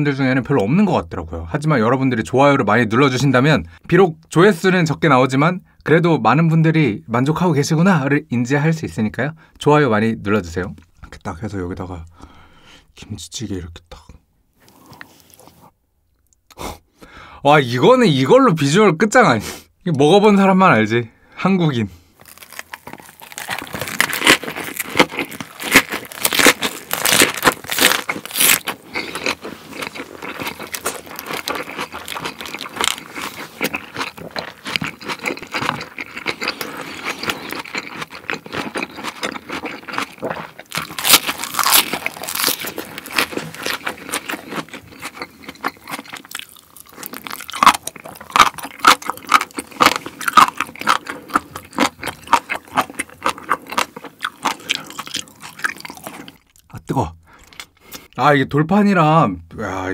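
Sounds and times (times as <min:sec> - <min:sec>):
crunching and chewing cabbage: 0:22.2 - 0:56.7.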